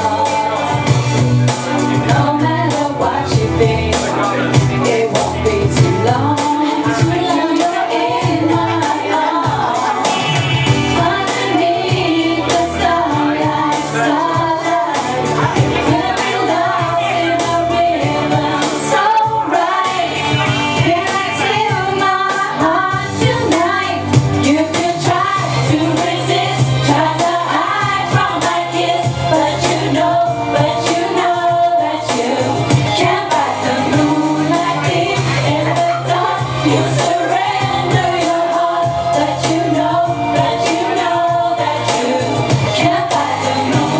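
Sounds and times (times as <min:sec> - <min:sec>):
pop backing track: 0:00.0 - 0:43.9
person singing into a microphone: 0:01.8 - 0:43.9.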